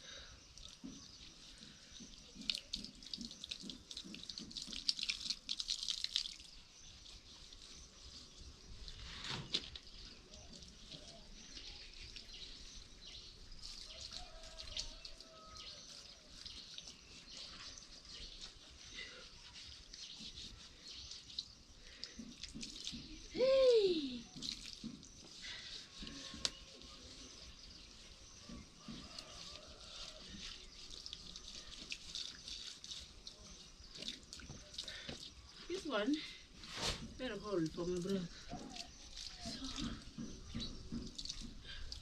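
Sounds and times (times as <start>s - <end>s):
faint water dripping and splashing: 0.0s - 42.0s.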